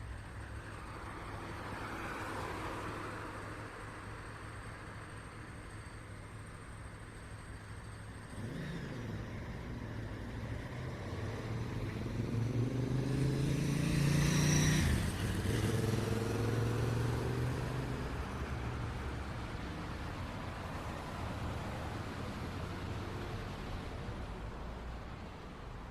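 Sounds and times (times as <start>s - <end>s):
steady traffic hum: 0.0s - 25.9s
vehicle driving past: 8.3s - 19.5s.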